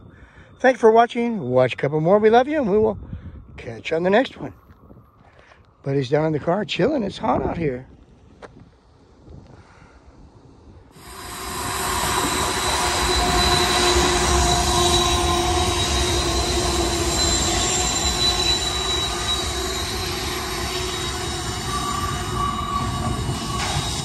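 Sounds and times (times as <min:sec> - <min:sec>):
locomotive rumble: 0:11.0 - 0:24.0
steel wheels squealing on rail: 0:11.0 - 0:24.0.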